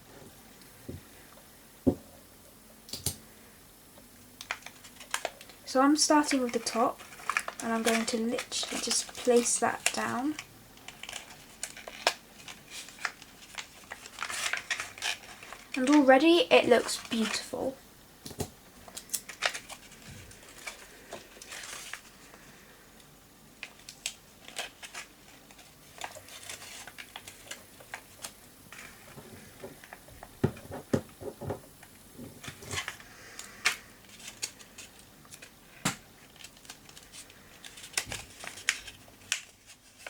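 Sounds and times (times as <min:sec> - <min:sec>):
paper pieces clicking and rustling: 0:04.4 - 0:17.6, 0:18.3 - 0:22.2, 0:23.6 - 0:30.0, 0:32.4 - 0:40.0.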